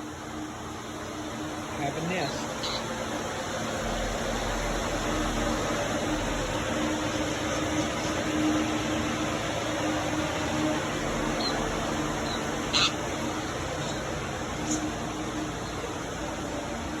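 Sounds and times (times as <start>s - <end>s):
machine hum and hiss: 0.0s - 17.0s
small bird chirping: 2.2s - 2.9s, 12.2s - 13.0s.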